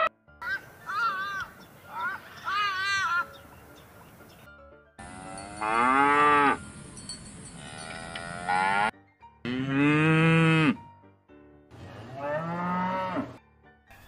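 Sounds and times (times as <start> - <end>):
cattle mooing: 5.0 - 6.6, 7.6 - 8.9, 9.5 - 10.8, 11.8 - 13.4.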